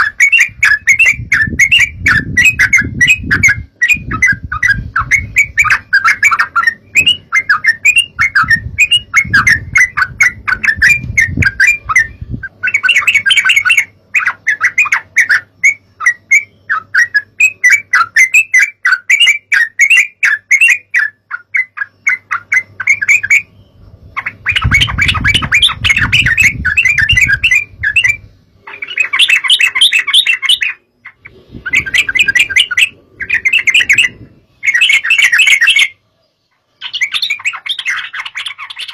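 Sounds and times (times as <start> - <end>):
bulbuls chattering: 24.1 - 38.9.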